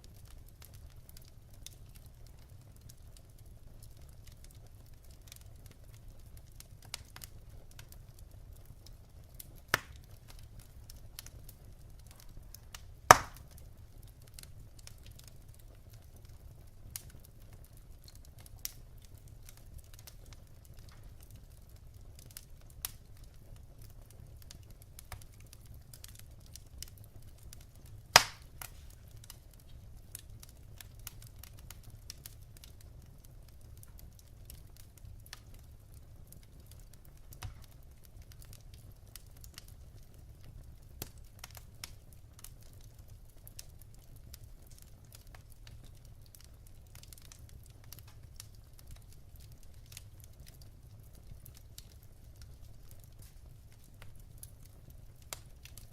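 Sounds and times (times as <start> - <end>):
wood fire crackling: 0.0 - 55.9
loud sharp pop: 13.1 - 13.4, 28.2 - 28.4.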